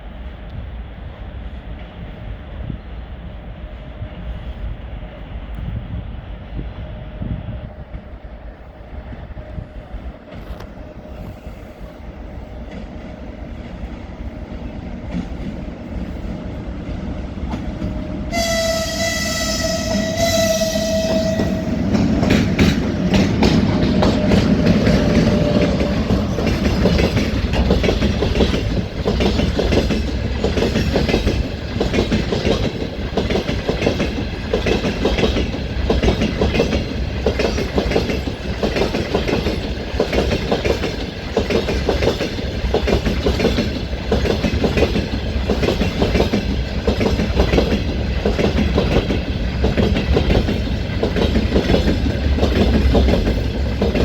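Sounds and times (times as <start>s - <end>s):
train wheels clattering over rail joints: 20.0s - 54.0s.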